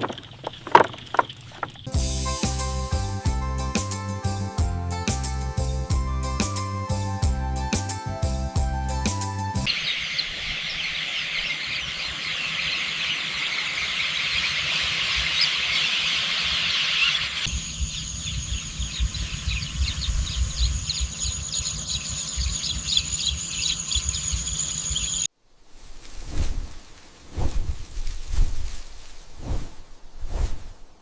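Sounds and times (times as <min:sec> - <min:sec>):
birds chirping: 0:00.0 - 0:03.1, 0:09.3 - 0:25.3
high insect drone: 0:17.4 - 0:25.3.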